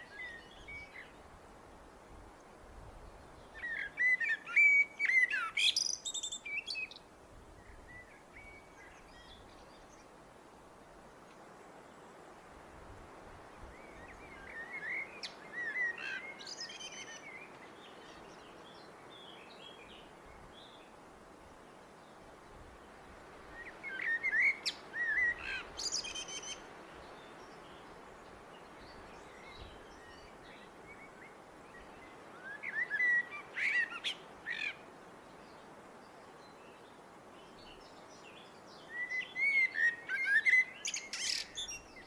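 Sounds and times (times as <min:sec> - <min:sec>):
faint background noise: 0:00.0 - 0:42.0
blackbird singing: 0:03.6 - 0:07.0, 0:23.6 - 0:26.6, 0:31.7 - 0:34.8, 0:38.8 - 0:42.0.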